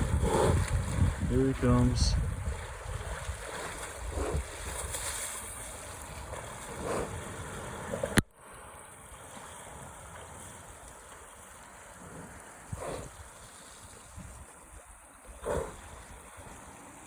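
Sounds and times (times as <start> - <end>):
wind buffeting microphone: 0.0 - 8.2, 12.3 - 16.7.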